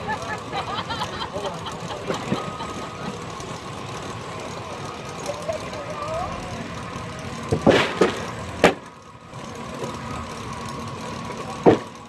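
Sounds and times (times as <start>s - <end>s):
faint steady whine: 0.0s - 12.0s
steam engine and sawmill humming: 0.0s - 12.0s
loud sharp sounds: 7.6s - 8.8s.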